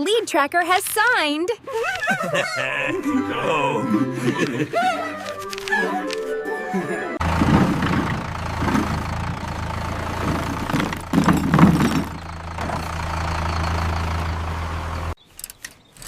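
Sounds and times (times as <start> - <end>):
engine idling: 7.2 - 15.2.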